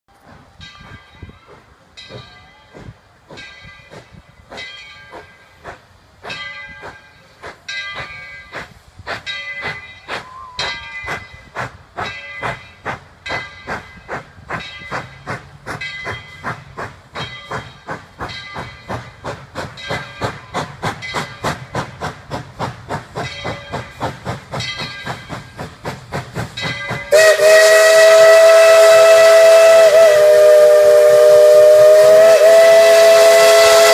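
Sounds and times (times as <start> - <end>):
steam locomotive exhaust chuffs: 0.1 - 33.9
steam whistle chord: 27.1 - 33.9.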